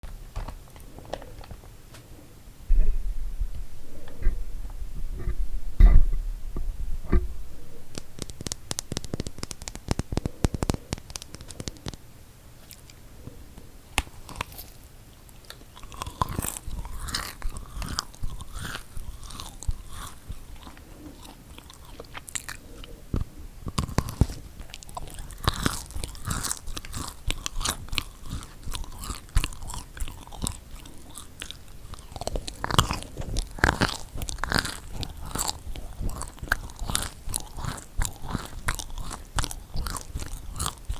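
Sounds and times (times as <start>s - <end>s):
chewing cookies: 7.8s - 40.9s
crisp crunching clicks: 7.9s - 12.0s, 13.6s - 40.9s.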